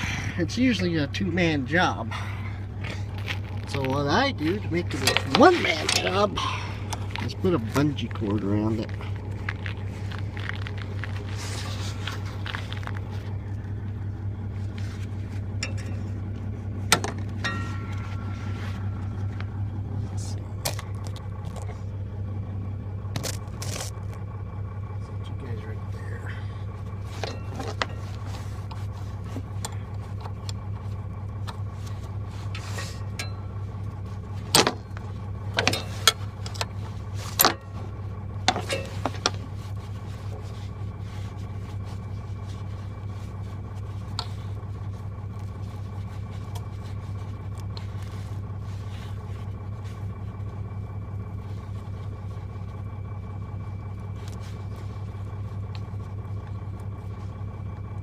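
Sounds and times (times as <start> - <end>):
engine idling: 0.0 - 58.0
metallic clanks and knocks: 15.6 - 16.2, 16.8 - 19.4, 35.5 - 36.7, 38.4 - 39.4.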